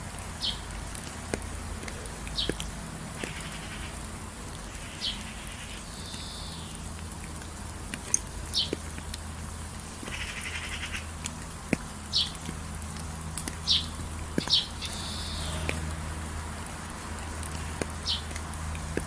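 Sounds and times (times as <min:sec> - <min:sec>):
buzzy pulsing bird calls: 0:04.7 - 0:06.8, 0:13.6 - 0:15.9.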